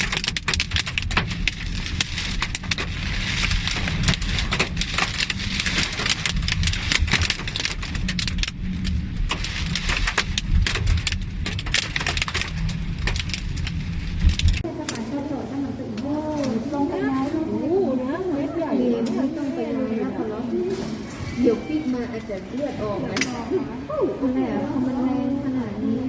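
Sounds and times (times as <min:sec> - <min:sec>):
heavy rain striking surfaces: 0:00.0 - 0:14.7
wind rumbling on microphone: 0:00.0 - 0:15.6.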